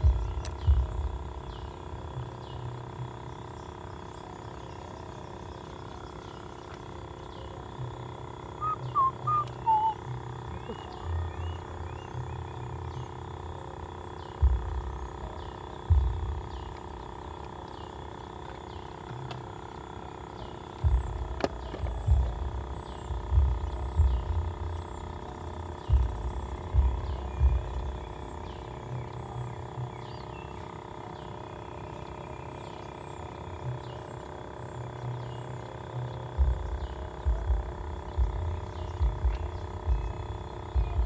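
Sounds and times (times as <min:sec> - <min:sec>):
faint steady hum: 0:00.0 - 0:41.0
short bird chirps: 0:08.6 - 0:10.0.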